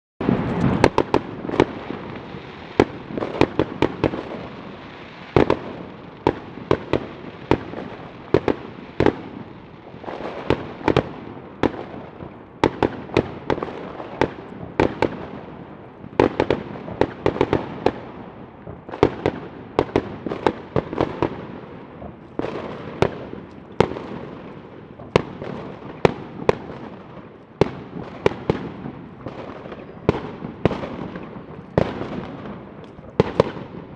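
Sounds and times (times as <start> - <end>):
distant explosions rolling: 0.2 - 4.5
firework bangs and cracks: 0.2 - 33.9.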